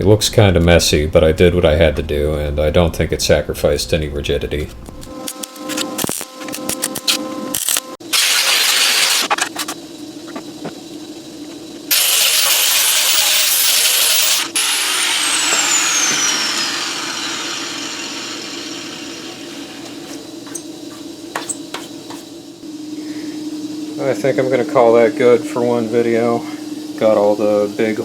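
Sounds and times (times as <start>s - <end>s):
steady hum: 0.0s - 8.0s, 14.2s - 28.0s
power grinder whine: 5.1s - 9.3s, 11.9s - 22.2s.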